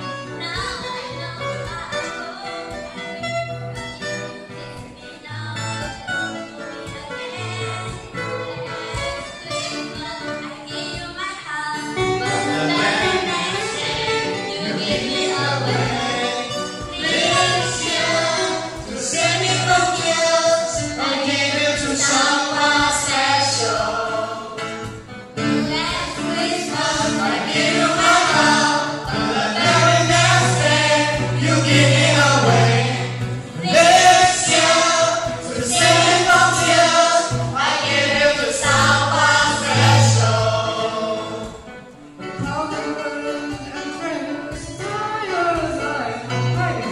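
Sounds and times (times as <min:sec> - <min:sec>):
guitar accompaniment: 0:00.0 - 0:46.9
group singing in harmony: 0:12.2 - 0:42.0.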